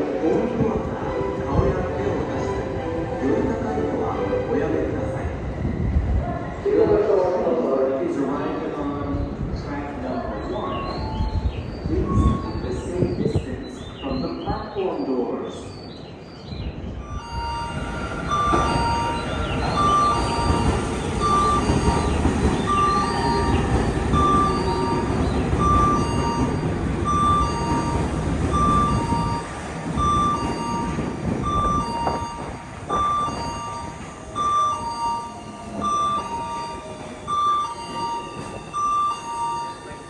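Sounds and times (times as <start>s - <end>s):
two-tone warning beep: 10.6s - 13.0s, 17.0s - 40.0s
electric train rumble: 16.1s - 40.0s.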